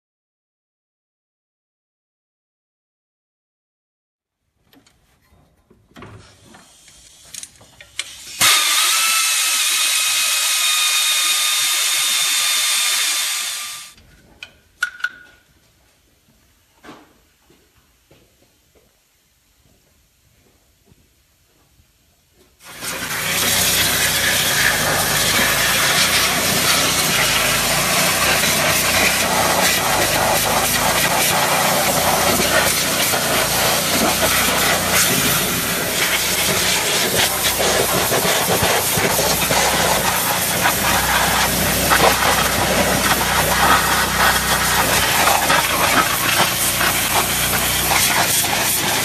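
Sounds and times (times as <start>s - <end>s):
loud steady hissing: 22.6s - 49.0s.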